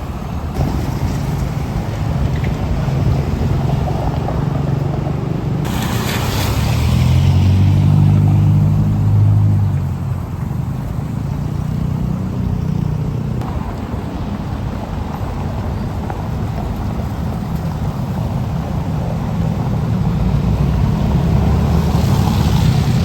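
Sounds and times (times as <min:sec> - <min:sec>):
large vehicle engine droning: 0:00.0 - 0:23.0
short burst of hiss: 0:05.6 - 0:07.8.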